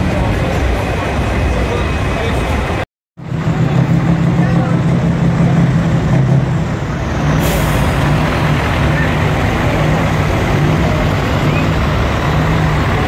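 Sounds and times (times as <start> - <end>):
people talking: 0.0 - 2.8, 3.5 - 5.8, 7.5 - 13.0
diesel truck engines idling: 0.0 - 13.0
air brake hiss: 7.3 - 8.0.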